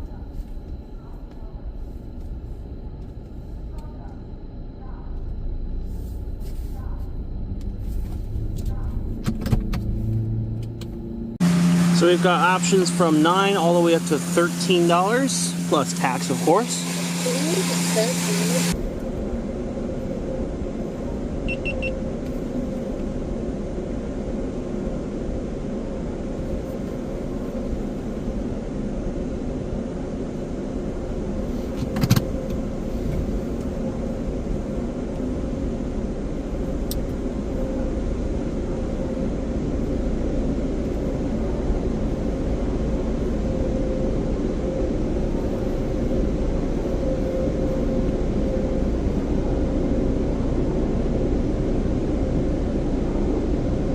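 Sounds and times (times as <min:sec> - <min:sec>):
faint steady hum: 0:00.0 - 0:53.9
car engine idling: 0:07.4 - 0:18.8.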